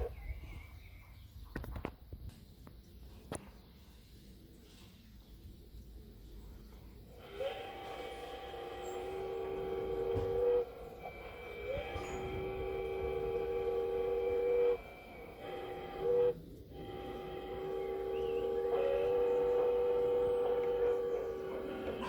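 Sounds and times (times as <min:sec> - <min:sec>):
two-tone steam whistle blasts: 0:07.2 - 0:22.0.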